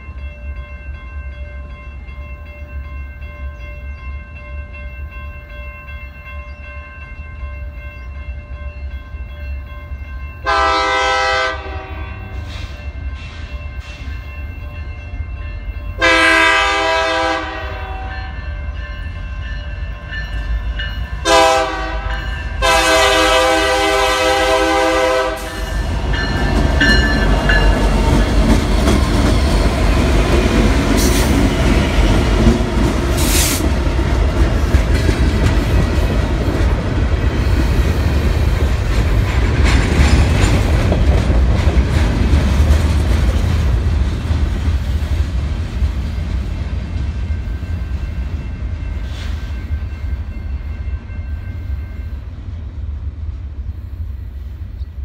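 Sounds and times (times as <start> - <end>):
train wheels on rails: 0.0 - 55.0
locomotive horn blasts: 10.4 - 12.5, 15.9 - 18.4, 21.2 - 25.9.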